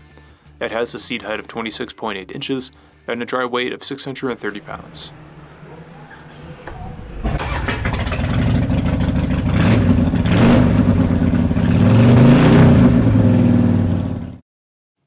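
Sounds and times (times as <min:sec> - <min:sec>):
motorcycle engine revving: 0:04.6 - 0:14.4.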